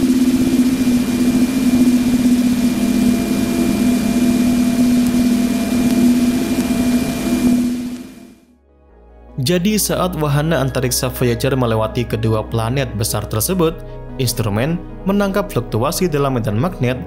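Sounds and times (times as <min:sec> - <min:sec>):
steady droning hum: 0:00.0 - 0:08.4.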